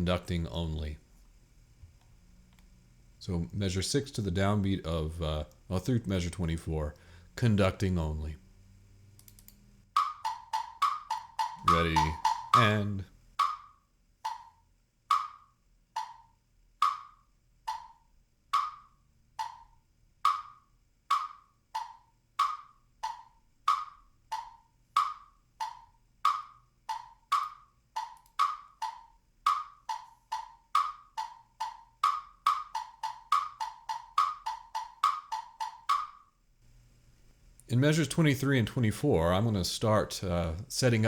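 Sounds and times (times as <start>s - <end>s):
metronome clicking: 9.2s - 18.0s, 18.6s - 36.3s.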